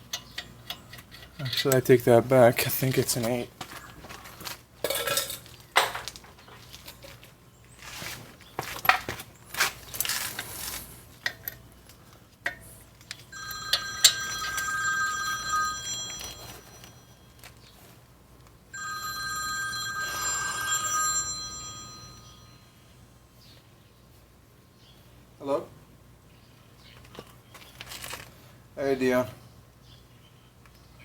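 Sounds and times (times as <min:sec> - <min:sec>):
phone ringtone: 0:13.3 - 0:17.6, 0:18.7 - 0:22.8.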